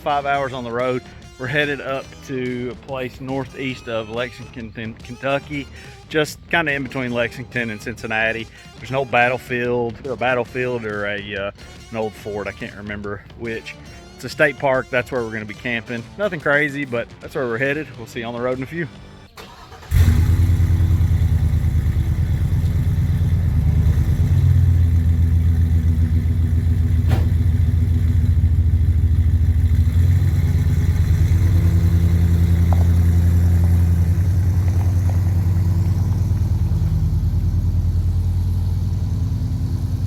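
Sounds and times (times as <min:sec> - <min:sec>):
engine running low rumble: 0:19.5 - 0:40.0.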